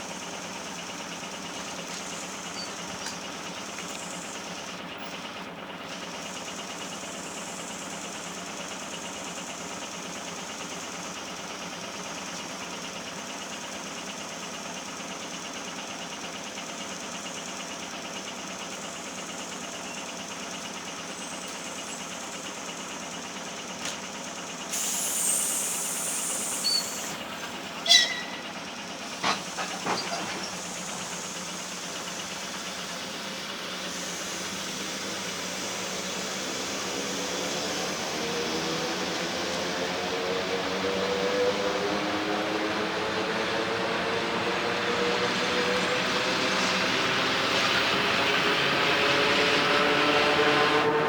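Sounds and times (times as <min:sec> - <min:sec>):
electric train rumbling: 0:00.0 - 0:51.0
loud hiss: 0:24.6 - 0:38.0
high-pitched squeal: 0:24.8 - 0:28.6.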